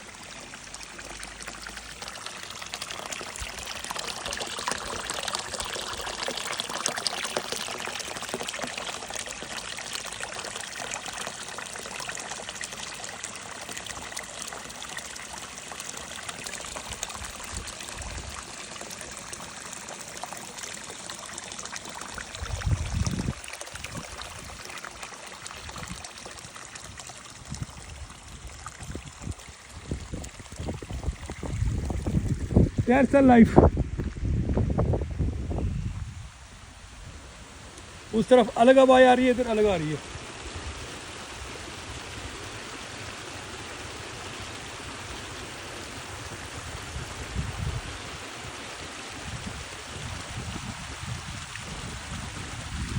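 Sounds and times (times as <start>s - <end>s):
stream trickling and splashing: 0.0s - 52.9s.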